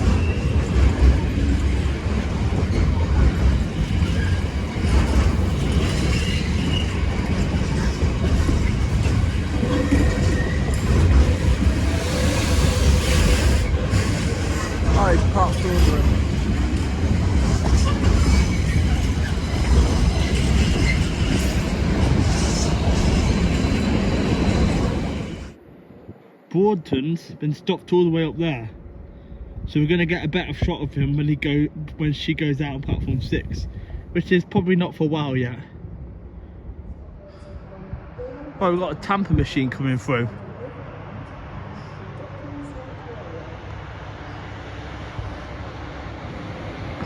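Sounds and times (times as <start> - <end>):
high wheel squeals: 0.0 - 0.8, 5.8 - 7.4, 9.6 - 14.4
clickety-clack of train wheels: 0.0 - 25.5
train wheels rumbling on rail: 0.0 - 25.6, 35.4 - 47.0.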